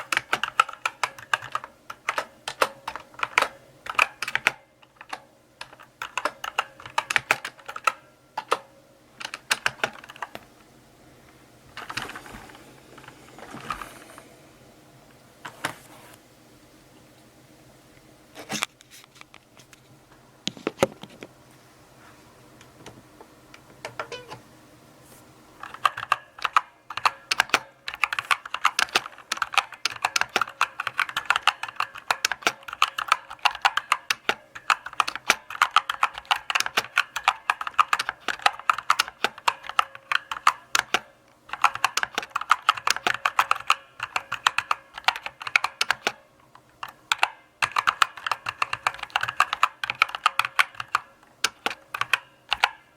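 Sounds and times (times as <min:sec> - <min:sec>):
typing on mechanical keyboard: 0:00.0 - 0:08.6, 0:09.2 - 0:10.4, 0:25.6 - 0:52.8.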